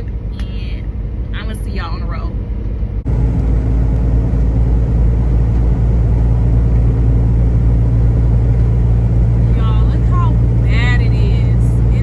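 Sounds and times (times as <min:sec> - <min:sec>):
road noise: 0:00.0 - 0:12.0
truck diesel engine drone: 0:00.0 - 0:12.0.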